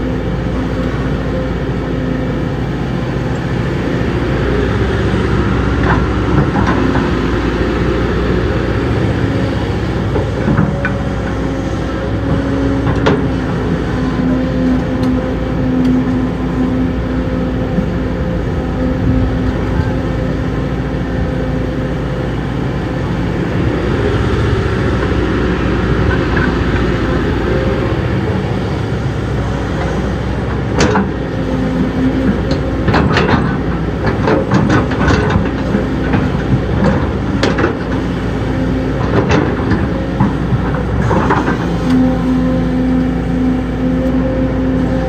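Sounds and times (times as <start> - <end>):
heavy diesel engine running: 0.0 - 45.0
sharp knocks and clanks: 30.5 - 31.2.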